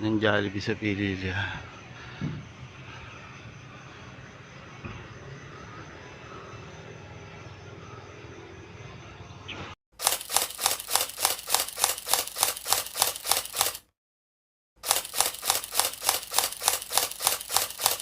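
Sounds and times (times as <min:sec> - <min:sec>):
rapid mechanical clicking: 0:10.0 - 0:13.9, 0:14.8 - 0:18.0.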